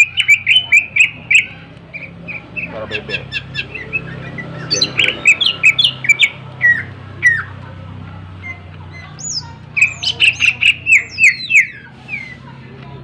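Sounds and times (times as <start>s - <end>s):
bird whistled notes: 9.2s - 12.4s.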